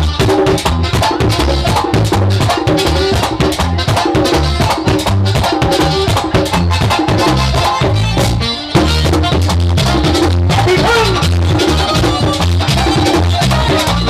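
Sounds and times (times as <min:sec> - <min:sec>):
live band music: 0:00.0 - 0:14.0.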